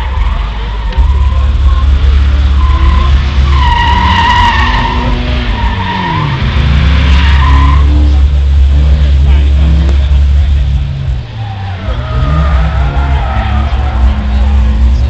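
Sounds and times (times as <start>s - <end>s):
tyres squealing: 0.0s - 8.3s, 11.2s - 15.0s
engine rumble: 0.0s - 15.0s.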